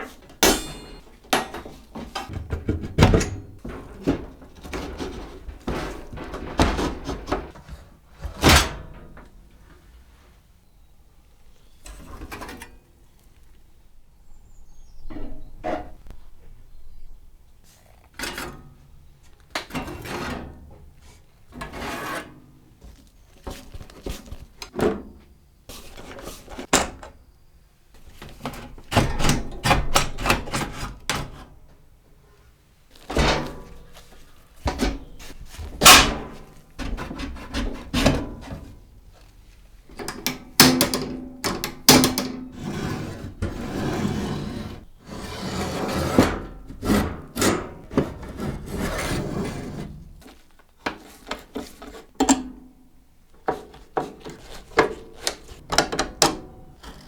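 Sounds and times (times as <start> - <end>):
wooden parts scraping: 3.6 - 7.8.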